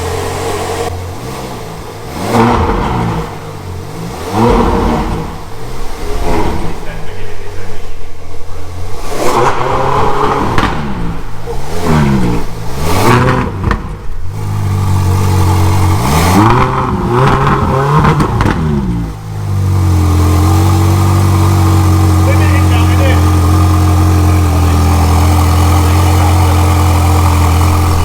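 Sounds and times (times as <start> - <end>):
car engine revving and idling: 0.0 - 28.0.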